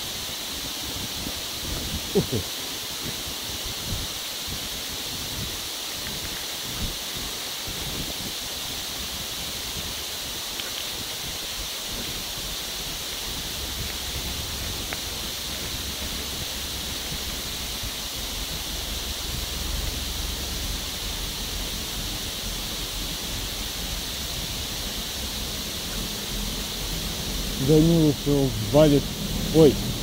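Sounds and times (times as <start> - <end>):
wind on microphone: 0.0 - 30.0.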